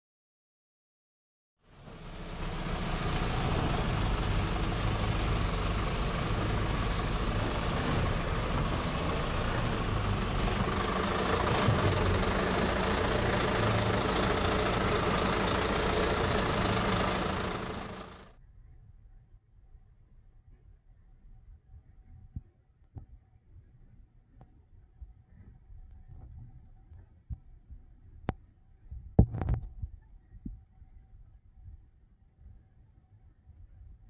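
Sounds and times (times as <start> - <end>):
diesel truck engine running: 1.7 - 18.4.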